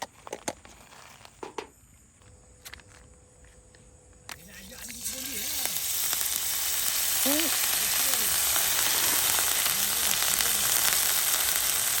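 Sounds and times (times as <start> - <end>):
food sizzling in oil: 4.4 - 12.0.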